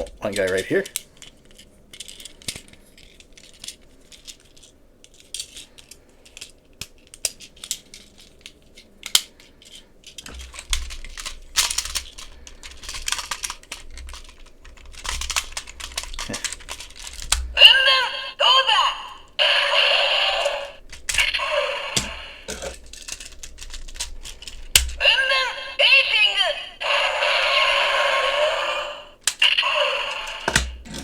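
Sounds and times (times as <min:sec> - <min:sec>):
plastic toy parts clicking: 0:00.0 - 0:17.7, 0:20.4 - 0:25.4, 0:29.2 - 0:31.0
scraping handling noise: 0:20.8 - 0:25.0, 0:30.3 - 0:31.0.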